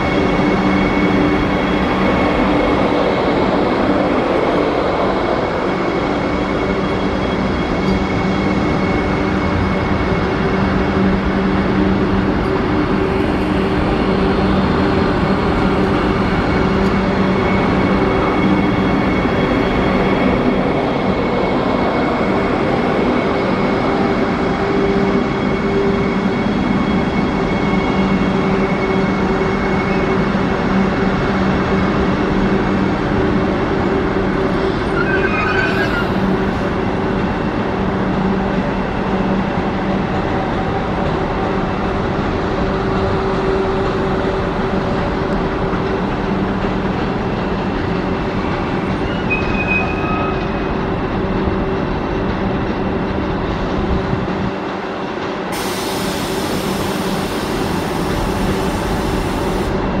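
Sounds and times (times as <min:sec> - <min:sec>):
electric train humming and rolling: 0:00.0 - 1:00.0
train wheel squeals: 0:05.1 - 0:11.7, 0:16.1 - 0:31.3, 0:34.2 - 0:36.7, 0:48.3 - 0:51.2, 0:55.6 - 0:59.7
steady hiss: 0:55.6 - 0:59.7.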